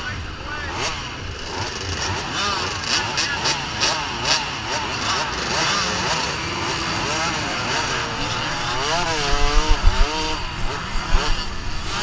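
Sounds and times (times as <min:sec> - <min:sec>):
dirt bike engines revving: 0:00.0 - 0:12.0
low thumps: 0:08.5 - 0:11.9.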